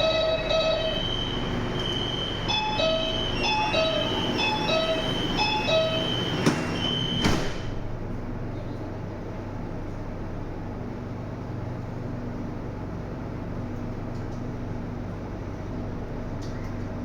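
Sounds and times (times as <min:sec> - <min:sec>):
steady high tone: 0:00.0 - 0:07.3
electronic door warning beeps: 0:00.0 - 0:07.7
train rumble: 0:00.0 - 0:13.8
train doors thudding shut: 0:00.1 - 0:08.0.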